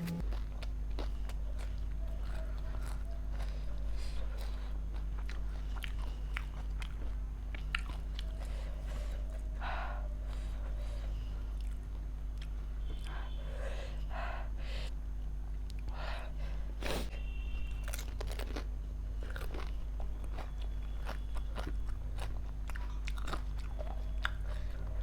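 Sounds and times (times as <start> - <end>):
crunchy food chewing: 0.0 - 13.4, 16.8 - 25.0
steady low hum: 0.0 - 25.0.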